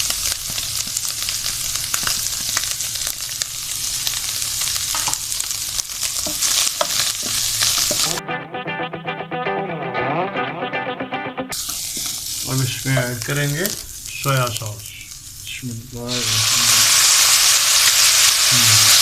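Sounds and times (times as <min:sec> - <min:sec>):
food sizzling in hot oil: 0:00.0 - 0:08.2, 0:11.5 - 0:19.0
background music: 0:08.0 - 0:11.6.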